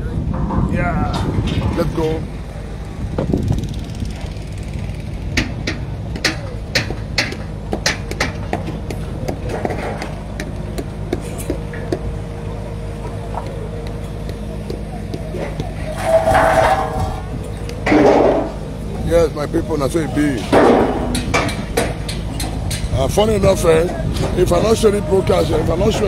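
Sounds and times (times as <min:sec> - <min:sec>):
engine running: 0:00.0 - 0:26.0
sharp knocks: 0:05.3 - 0:12.1, 0:20.5 - 0:23.0.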